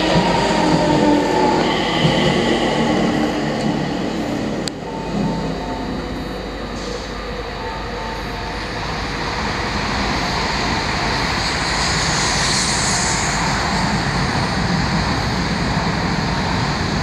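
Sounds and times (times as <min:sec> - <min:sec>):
train running past: 0:00.0 - 0:17.0.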